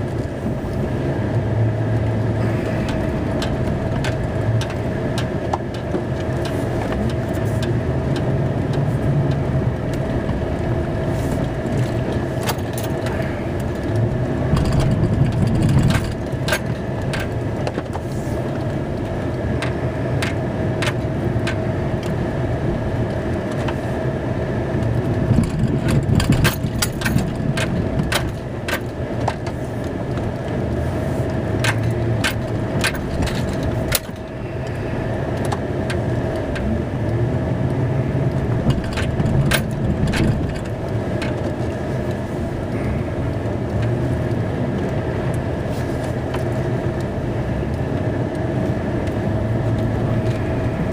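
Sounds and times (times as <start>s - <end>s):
steady whine: 0.0s - 50.9s
truck engine running: 0.0s - 50.9s
clicks and rattles: 11.4s - 22.2s, 24.8s - 30.6s, 31.6s - 34.3s, 38.5s - 42.2s.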